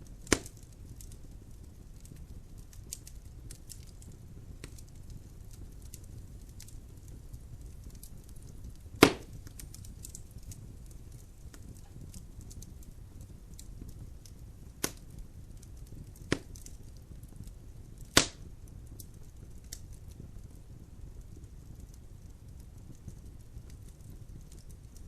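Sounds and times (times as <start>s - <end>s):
logs burning in fireplace: 0.0s - 25.0s
wood popping sharply: 9.0s - 9.4s, 18.1s - 18.4s.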